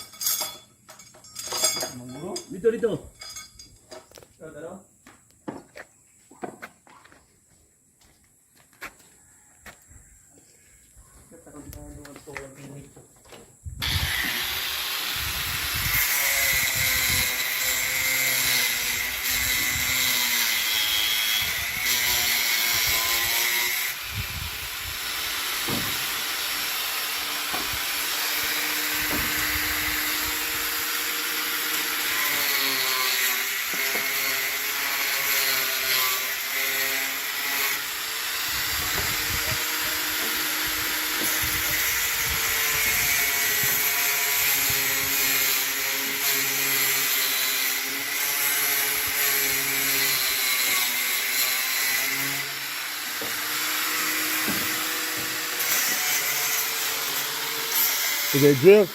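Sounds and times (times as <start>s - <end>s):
electric power tool running: 13.8s - 58.9s.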